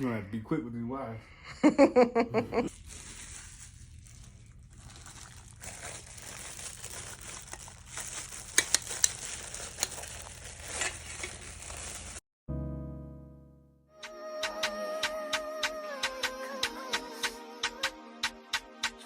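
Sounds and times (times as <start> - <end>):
plastic rustling and crinkling: 2.7 - 12.2.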